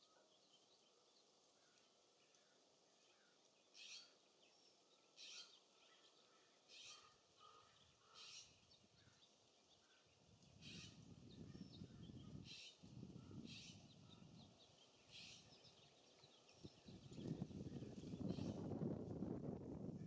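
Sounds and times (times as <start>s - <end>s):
harsh bird calls: 6.7s - 9.2s, 10.6s - 16.0s
wind rumble on microphone: 10.1s - 20.0s.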